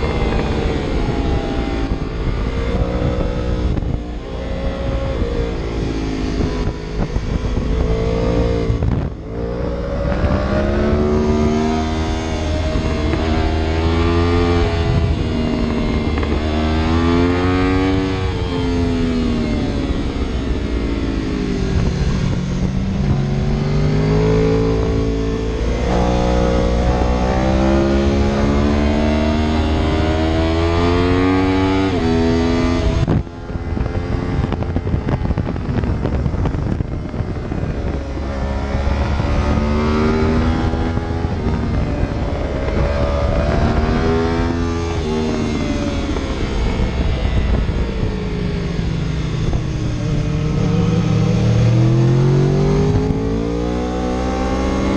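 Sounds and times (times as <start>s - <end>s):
vehicle engine accelerating hard: 0.0s - 54.9s.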